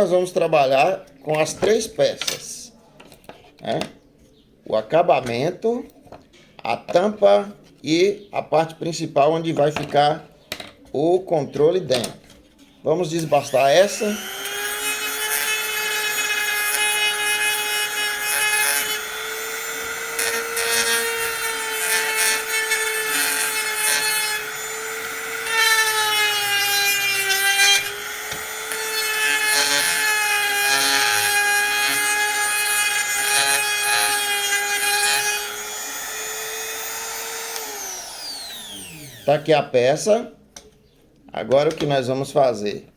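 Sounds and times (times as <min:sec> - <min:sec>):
rotary tool grinding plastic pipe: 0:13.2 - 0:39.4.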